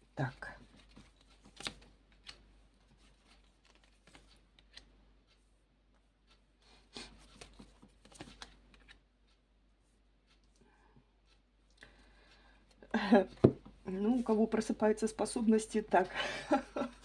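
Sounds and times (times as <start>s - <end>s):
playing cards rustling and tapping: 0.6s - 4.9s, 7.0s - 9.0s.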